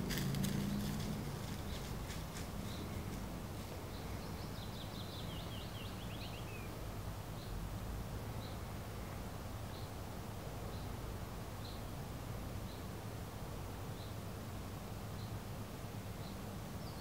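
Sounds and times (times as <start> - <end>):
songbird trill: 0.0 - 7.6, 11.6 - 11.9, 16.2 - 17.0
low steady rumble: 0.0 - 16.8.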